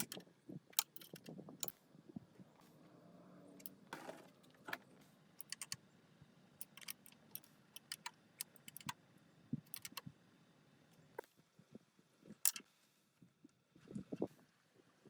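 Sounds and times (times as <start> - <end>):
light metallic clicks and clinks: 0.8 - 1.8, 5.4 - 5.8, 6.6 - 8.9.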